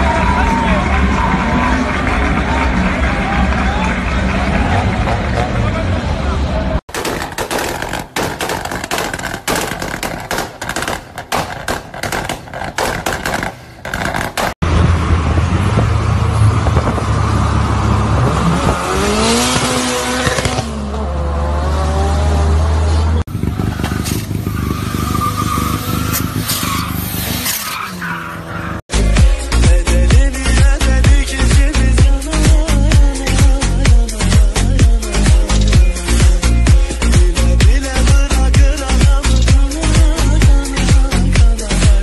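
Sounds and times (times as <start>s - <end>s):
car engine crackling: 0.9s - 21.0s.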